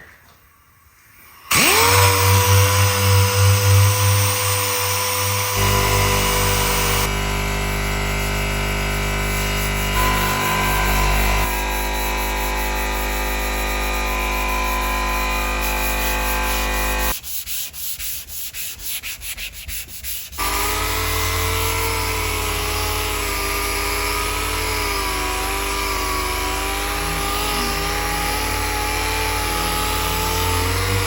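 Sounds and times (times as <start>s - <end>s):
power sander running: 1.5s - 17.2s, 20.4s - 31.0s
rubbing strokes: 11.6s - 20.4s.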